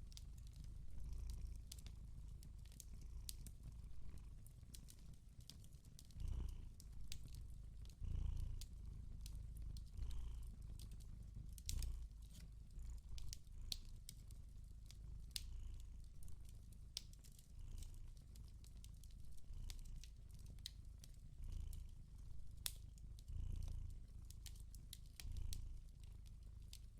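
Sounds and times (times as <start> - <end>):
cat purring: 0.0 - 26.9
log fire crackling: 1.4 - 3.8, 4.5 - 6.0, 8.5 - 15.5, 16.1 - 19.2, 22.6 - 22.8.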